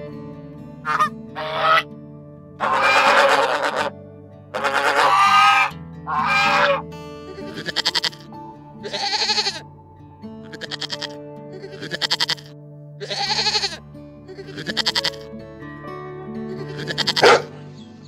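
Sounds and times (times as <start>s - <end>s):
background music with low notes: 0.0s - 18.0s
loud animal calls: 0.8s - 1.9s, 2.6s - 3.9s, 4.5s - 6.8s, 7.4s - 8.2s, 8.8s - 9.6s, 10.4s - 15.2s, 16.5s - 17.6s
young goats bleating: 0.9s - 1.9s, 2.6s - 3.9s, 4.5s - 9.6s, 10.4s - 15.2s, 16.5s - 17.5s.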